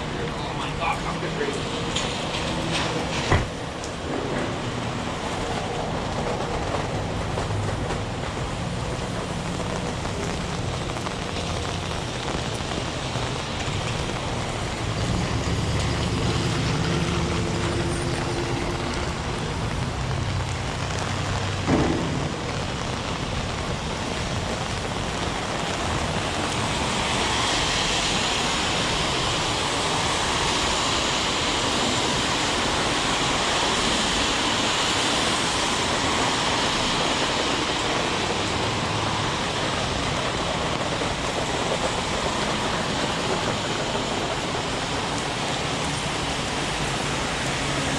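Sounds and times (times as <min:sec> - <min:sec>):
heavy rain on street: 0:00.0 - 0:47.9.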